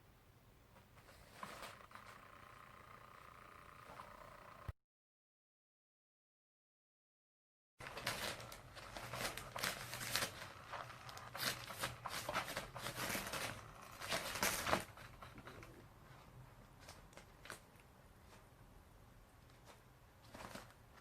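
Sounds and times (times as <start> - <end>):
cat toy rustling and clicking: 0.8 - 4.2, 7.8 - 18.6, 19.4 - 21.0.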